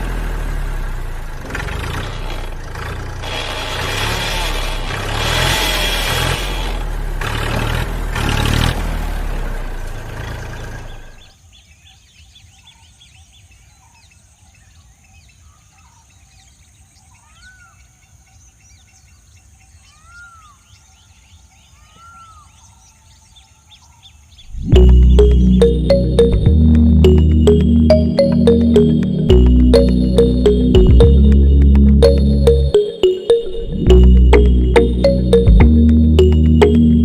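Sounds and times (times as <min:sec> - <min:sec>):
small engine running: 0:00.0 - 0:11.2.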